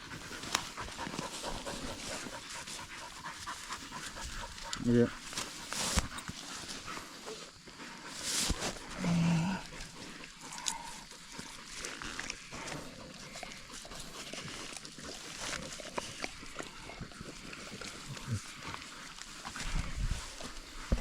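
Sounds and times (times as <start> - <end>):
rustling and snapping in scrub: 4.6 - 6.8
low grunt: 8.9 - 9.7.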